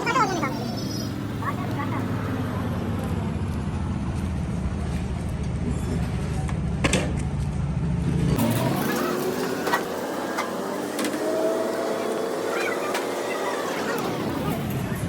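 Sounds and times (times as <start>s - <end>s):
engine running low rumble: 0.0s - 9.2s.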